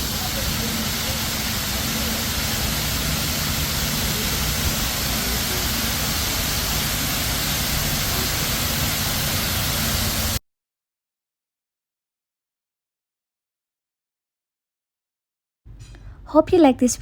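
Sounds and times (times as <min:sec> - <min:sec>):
waterfall rushing over rock: 0:00.0 - 0:10.4.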